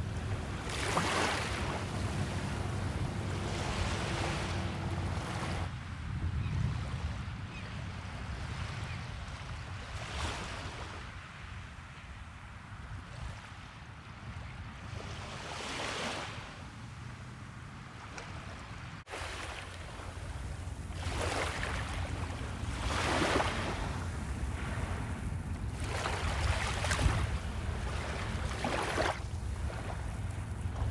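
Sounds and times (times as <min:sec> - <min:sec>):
surf waves breaking: 0:00.0 - 0:05.7, 0:19.1 - 0:30.9
wind rumble on microphone: 0:00.0 - 0:30.9.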